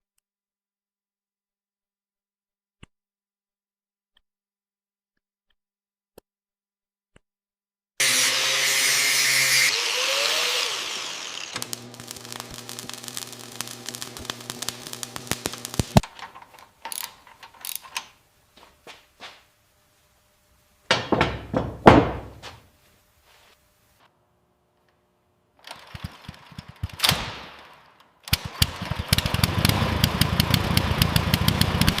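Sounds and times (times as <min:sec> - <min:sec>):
power tool running: 0:08.0 - 0:16.1, 0:28.4 - 0:32.0
tool spinning down: 0:08.0 - 0:16.1
rattling clicks: 0:15.2 - 0:18.1.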